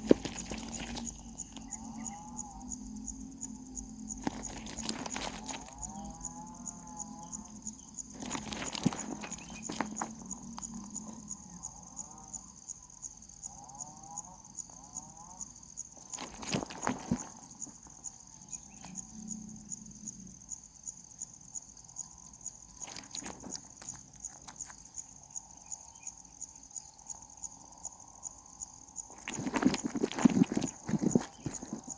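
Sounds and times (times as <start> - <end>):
sharp knocks and rustles: 0.0 - 1.8, 4.2 - 6.2, 8.1 - 11.2, 16.0 - 19.0, 22.8 - 24.9, 29.1 - 31.9
insect pulsing trill: 0.0 - 31.9.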